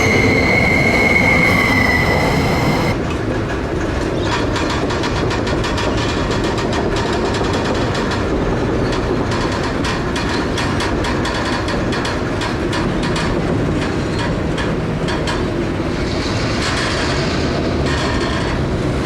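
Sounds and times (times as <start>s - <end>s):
freight train wheels rumbling: 0.0s - 19.0s
train wheel squeal: 0.0s - 19.0s.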